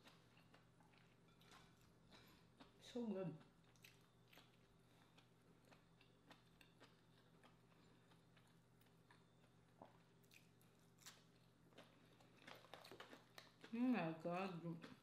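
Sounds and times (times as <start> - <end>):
wet mouth clicks of chewing: 3.6 - 9.2
crisp crunches of cucumber: 10.3 - 13.7.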